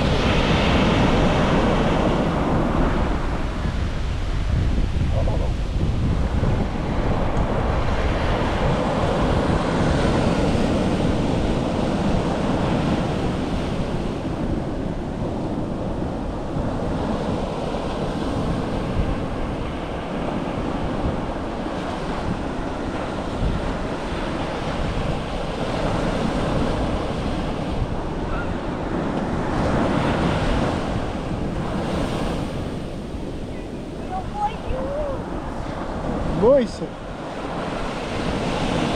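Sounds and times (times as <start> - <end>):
surf breaking on beach: 0.0 - 38.9
wind buffeting microphone: 0.0 - 38.9.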